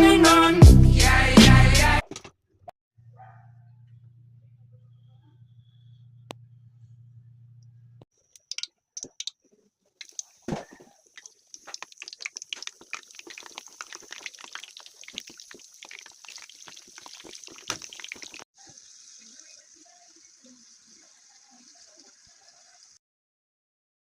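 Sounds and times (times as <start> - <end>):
chicken frying in hot oil: 8.4 - 9.3, 10.0 - 23.0.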